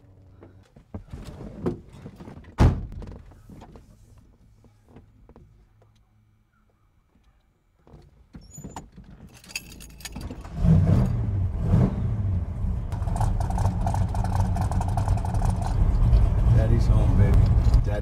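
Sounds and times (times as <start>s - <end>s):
keys jangling: 9.2s - 10.4s
car engine starting and running: 9.7s - 18.0s.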